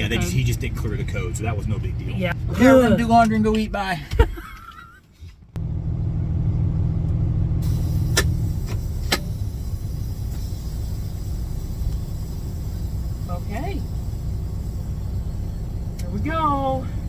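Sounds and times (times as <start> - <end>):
diesel truck engine idling: 0.0 - 4.6, 5.5 - 17.0
sharp clicks: 8.0 - 9.4, 13.2 - 16.4.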